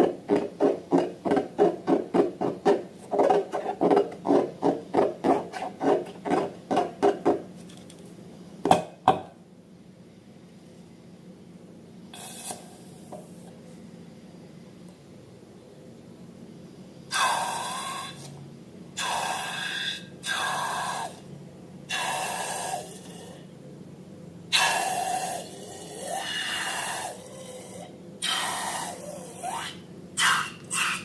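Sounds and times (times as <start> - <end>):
air hissing out of balloons: 12.1 - 13.5.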